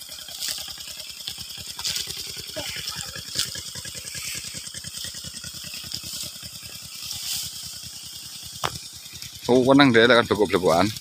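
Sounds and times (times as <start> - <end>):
small motorcycle engine putter: 0.0 - 11.0.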